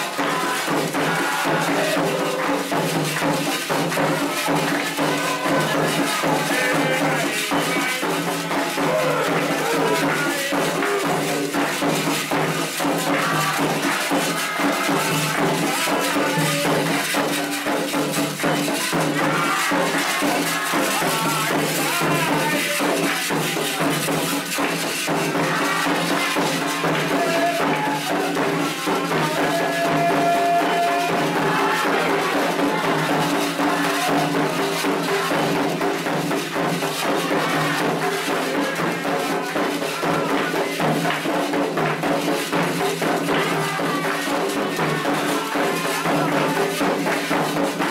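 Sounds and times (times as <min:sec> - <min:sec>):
group chanting: 0:00.0 - 0:47.9
hand drums: 0:00.0 - 0:47.9
rattling hand percussion: 0:00.0 - 0:47.9.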